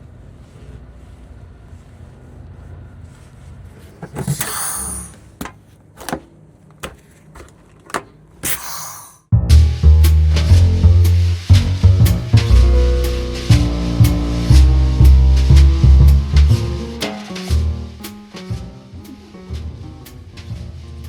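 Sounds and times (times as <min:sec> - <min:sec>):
short hissing bursts: 0:04.2 - 0:05.3, 0:08.4 - 0:09.2.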